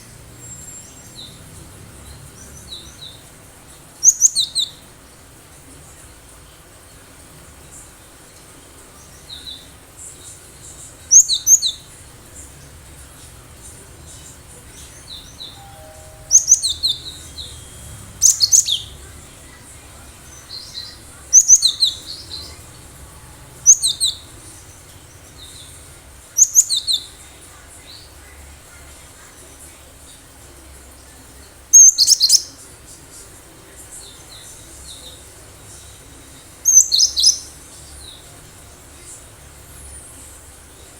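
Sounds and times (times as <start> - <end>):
bird singing high repeated notes: 14.8 - 19.1.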